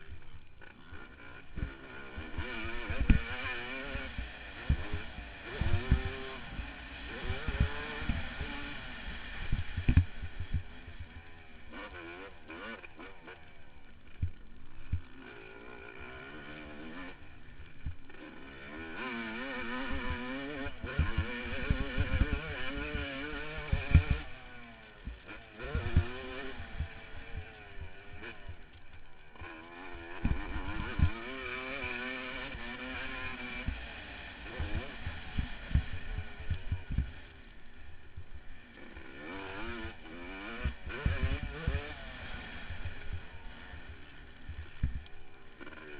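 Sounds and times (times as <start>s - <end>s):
dirt bike engine revving: 0.0s - 45.9s
low thumps: 34.6s - 37.2s.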